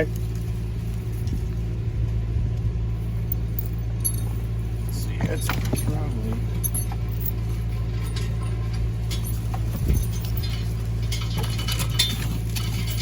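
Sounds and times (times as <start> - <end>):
engine idling: 0.0 - 13.0
metallic clinks of chain: 3.0 - 13.0.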